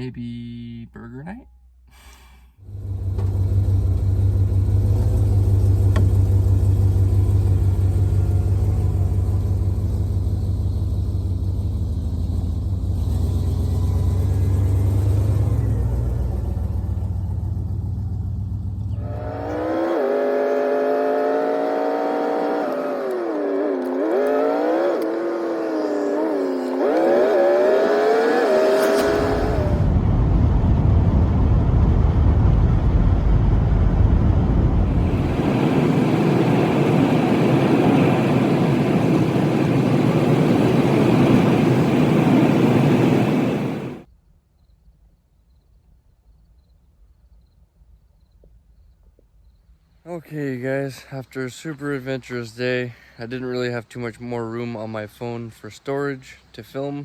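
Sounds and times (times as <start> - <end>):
van engine and road rumble: 0.0 - 44.1
whining engine note: 2.6 - 44.1.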